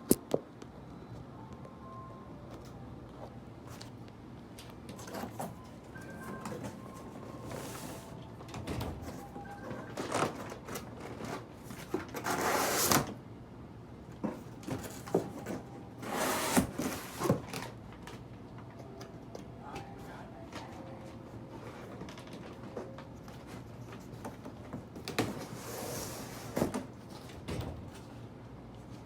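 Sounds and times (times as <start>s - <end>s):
packaging scraping and rustling: 9.8s - 13.1s, 14.8s - 17.7s.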